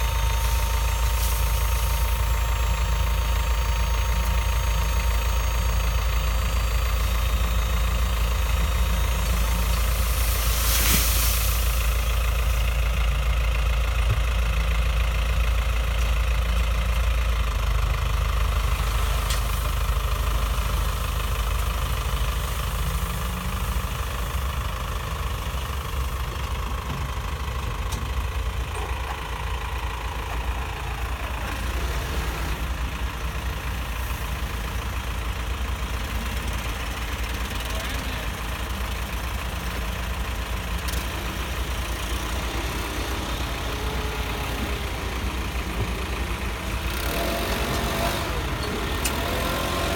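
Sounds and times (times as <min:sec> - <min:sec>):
truck engine idling: 0:00.0 - 0:49.9
brief hiss: 0:10.0 - 0:12.1.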